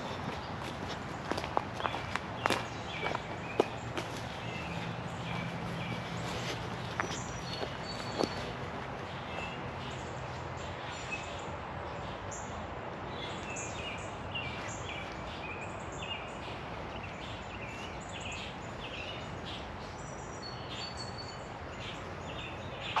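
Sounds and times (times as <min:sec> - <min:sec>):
birds chirping and calling: 0:00.0 - 0:11.5.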